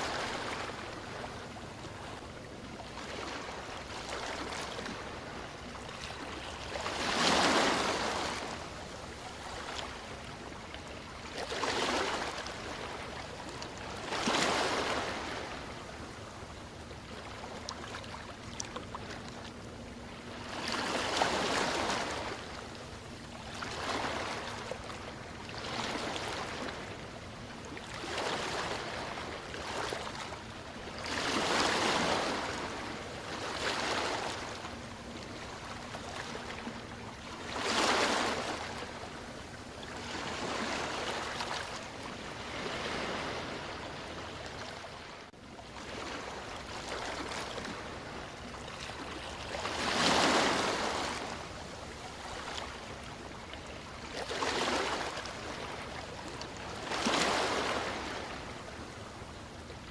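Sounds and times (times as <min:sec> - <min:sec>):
sea waves washing in: 0:30.9 - 0:45.2.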